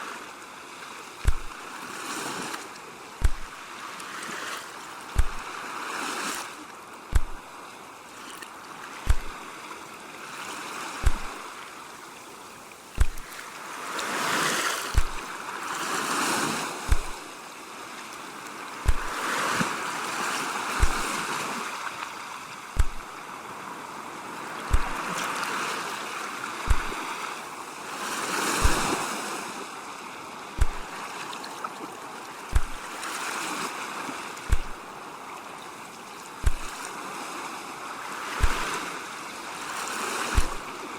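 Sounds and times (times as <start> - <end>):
ocean waves washing: 0.8 - 40.9
short deep thump: 1.2 - 1.5, 3.2 - 3.6, 5.2 - 5.4, 7.1 - 7.4, 9.1 - 9.4, 11.0 - 11.4, 13.0 - 13.4, 15.0 - 15.2, 16.9 - 17.2, 18.8 - 19.2, 20.8 - 21.1, 22.8 - 23.1, 24.7 - 25.0, 26.7 - 27.0, 28.6 - 28.9, 30.6 - 30.9, 32.5 - 32.9, 34.5 - 34.9, 36.4 - 36.8, 38.4 - 38.7, 40.4 - 40.7.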